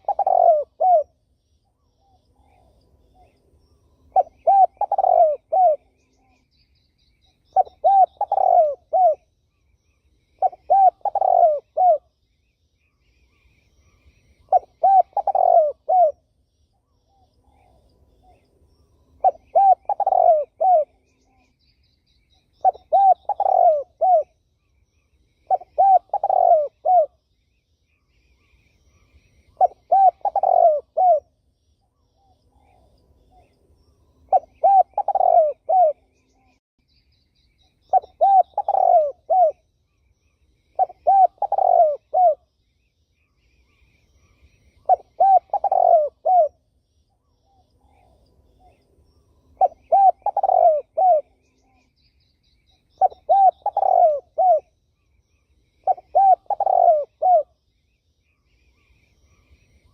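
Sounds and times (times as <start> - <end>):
dove cooing: 0.0 - 1.2, 4.1 - 6.4, 7.5 - 9.3, 10.4 - 12.1, 14.4 - 16.2, 19.2 - 21.3, 22.6 - 24.4, 25.5 - 27.2, 29.5 - 31.3, 34.3 - 36.3, 37.9 - 39.6, 40.8 - 42.4, 44.3 - 46.6, 49.6 - 51.6, 53.0 - 54.7, 55.8 - 57.6
faint small bird chirps: 0.0 - 59.9.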